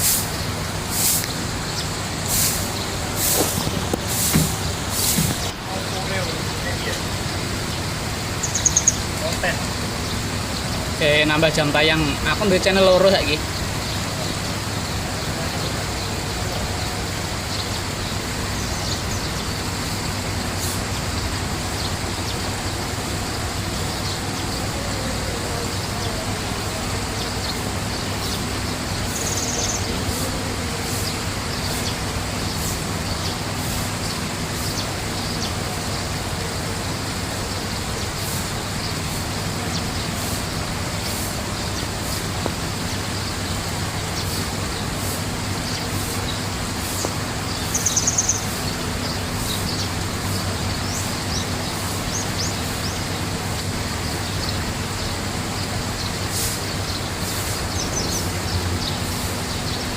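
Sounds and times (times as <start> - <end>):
small birds chirping: 0.0 - 59.9
steady rushing noise: 0.0 - 59.9
bird trill: 5.0 - 14.4, 27.1 - 36.0, 45.6 - 53.2.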